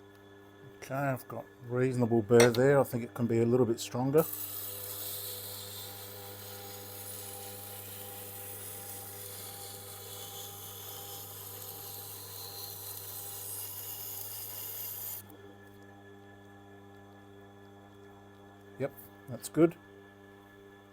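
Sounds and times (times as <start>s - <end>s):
grinder motor hum: 0.1s - 16.6s
knife scraping on grinding stone: 4.2s - 15.2s.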